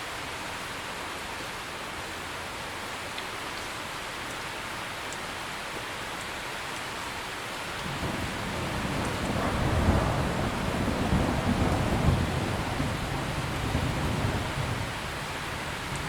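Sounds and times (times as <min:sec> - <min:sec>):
heavy rain: 0:00.0 - 0:16.0
thunder rumbling: 0:07.8 - 0:16.0.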